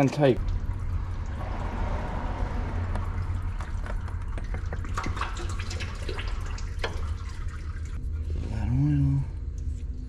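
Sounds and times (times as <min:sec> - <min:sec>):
low rumble: 0:00.4 - 0:05.2.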